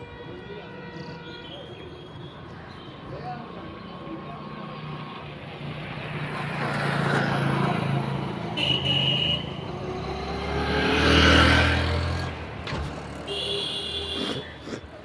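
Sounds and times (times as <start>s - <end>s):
vehicle driving past: 6.1s - 14.2s.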